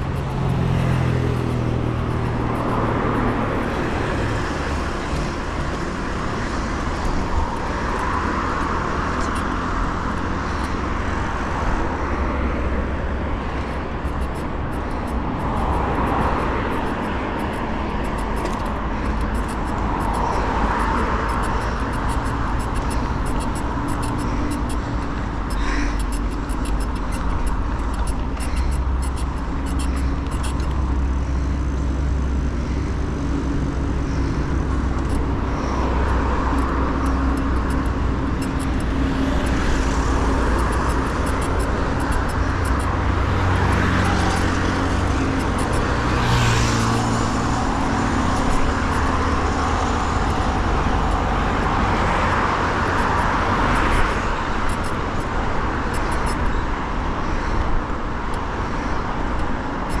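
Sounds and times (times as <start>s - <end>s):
vehicles passing close: 0.0s - 60.0s.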